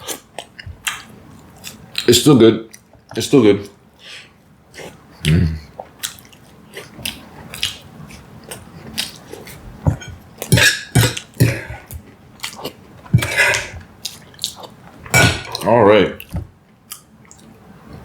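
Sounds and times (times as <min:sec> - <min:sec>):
chewing pie: 0:04.7 - 0:17.6.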